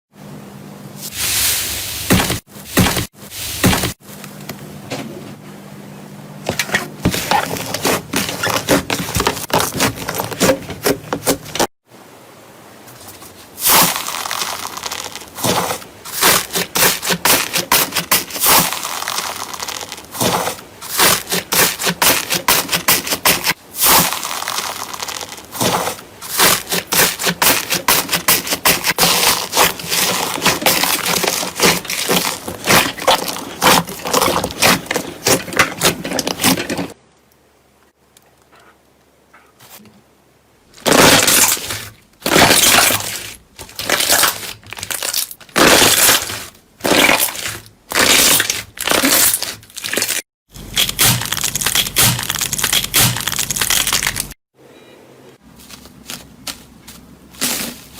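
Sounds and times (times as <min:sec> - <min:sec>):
slime crackling and popping: 0:13.6 - 0:36.5, 0:40.8 - 0:54.4.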